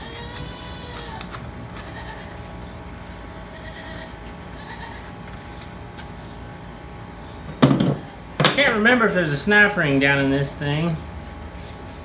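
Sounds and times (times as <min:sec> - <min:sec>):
livestock bleating: 0:00.0 - 0:01.2, 0:01.8 - 0:02.4, 0:03.5 - 0:05.1
steady low hum: 0:00.0 - 0:12.0.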